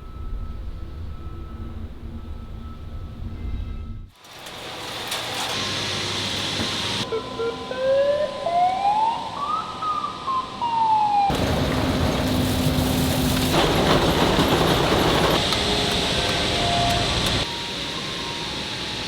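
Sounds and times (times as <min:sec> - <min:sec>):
loud machine noise with hum: 0:11.3 - 0:19.0.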